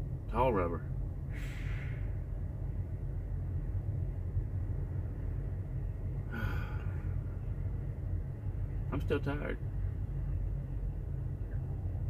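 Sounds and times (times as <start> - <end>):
diesel engine idling: 0.0 - 12.0
short hiss: 1.3 - 2.1.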